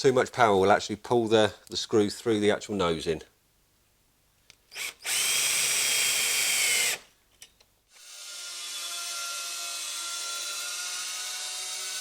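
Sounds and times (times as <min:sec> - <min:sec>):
cordless drill driving screw: 0:04.7 - 0:07.1, 0:07.9 - 0:12.0.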